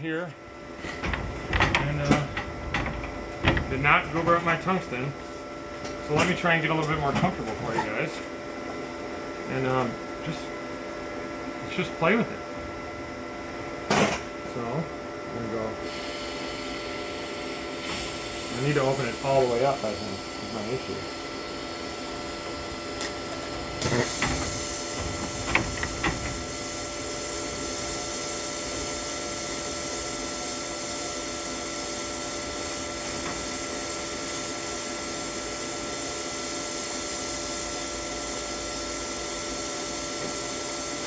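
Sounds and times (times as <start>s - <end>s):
welding arc hiss: 15.8s - 41.0s.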